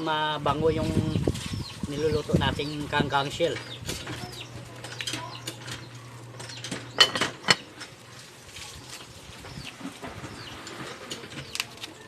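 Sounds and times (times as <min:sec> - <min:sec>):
firewood crackling: 0:07.6 - 0:12.0.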